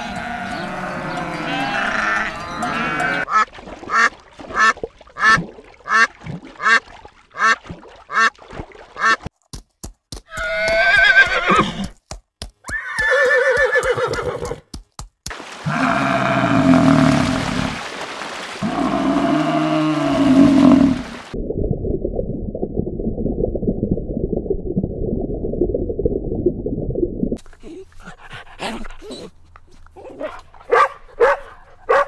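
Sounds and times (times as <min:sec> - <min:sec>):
horse whinnies: 0:10.3 - 0:11.8, 0:12.7 - 0:14.6.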